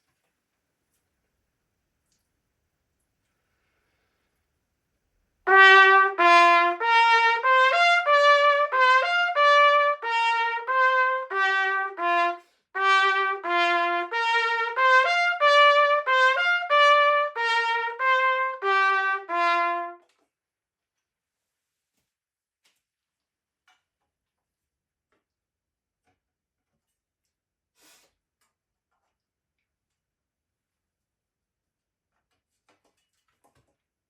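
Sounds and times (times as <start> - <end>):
trumpet playing melodic phrase: 5.5 - 20.0.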